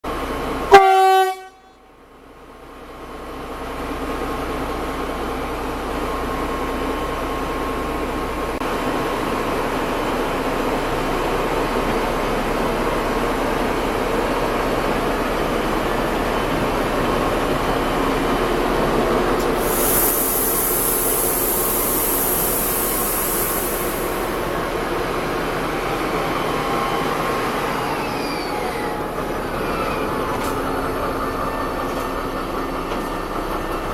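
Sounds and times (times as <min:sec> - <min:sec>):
diesel locomotive running: 0:00.0 - 0:33.9
train horn blast: 0:00.7 - 0:01.8
high hissing: 0:19.6 - 0:24.6.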